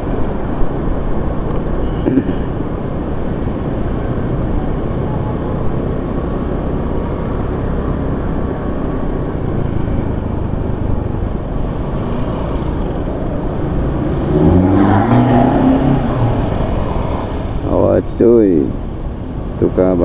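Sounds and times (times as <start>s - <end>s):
traffic and road noise: 0.0s - 20.0s
engine revving: 5.2s - 18.7s.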